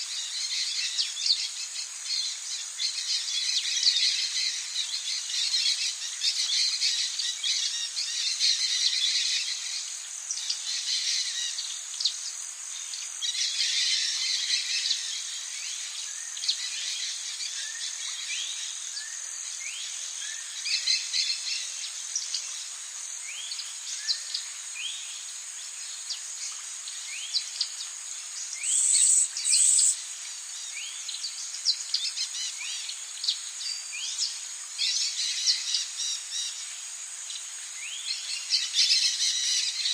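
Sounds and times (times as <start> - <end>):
insect drone: 0.0 - 39.9
birds chirping: 28.5 - 30.0.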